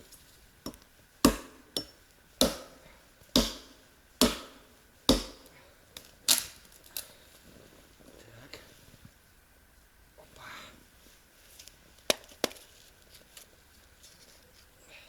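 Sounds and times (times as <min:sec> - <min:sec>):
sharp wooden cracks: 0:03.4 - 0:07.1.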